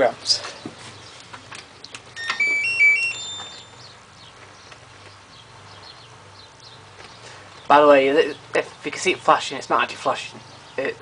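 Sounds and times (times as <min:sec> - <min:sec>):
washing machine power-on chime: 0:02.2 - 0:03.8.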